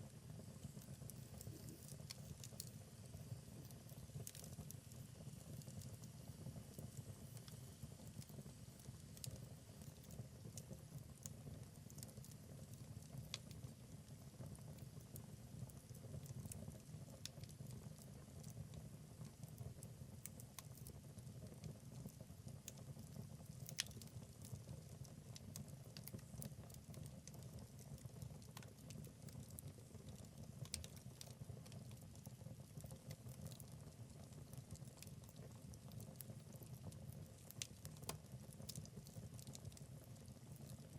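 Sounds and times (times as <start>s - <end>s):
logs crackling and popping: 3.6s - 5.0s, 22.7s - 40.9s.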